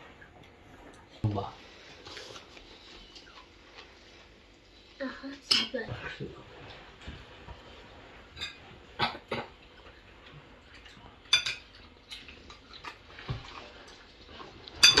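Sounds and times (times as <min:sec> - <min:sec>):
cutlery clinking on plates: 0:08.4 - 0:09.6, 0:10.7 - 0:13.6, 0:14.7 - 0:15.0.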